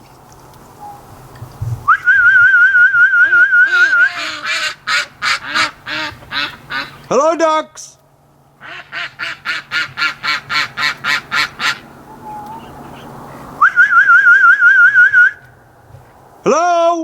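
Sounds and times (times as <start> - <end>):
person whistling warbling note: 1.9 - 4.2, 13.6 - 15.4
duck quacking: 3.3 - 7.1, 8.6 - 13.1.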